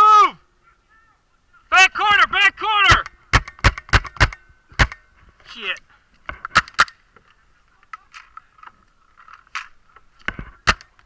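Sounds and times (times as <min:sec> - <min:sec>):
paintball markers firing pops: 0:02.9 - 0:05.0, 0:09.6 - 0:11.0.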